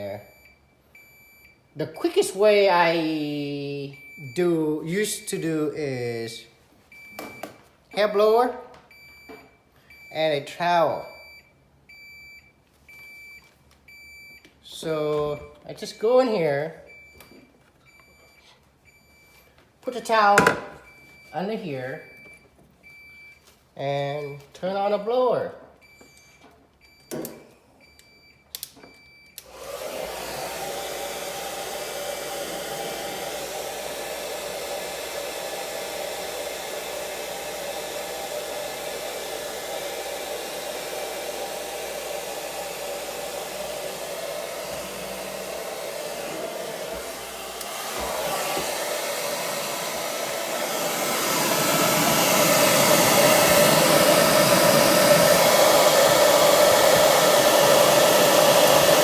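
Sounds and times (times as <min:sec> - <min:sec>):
hair dryer blowing: 0:02.0 - 0:03.8, 0:20.0 - 0:20.8, 0:29.4 - 0:59.0
hair dryer switch clicks: 0:46.0 - 0:48.8.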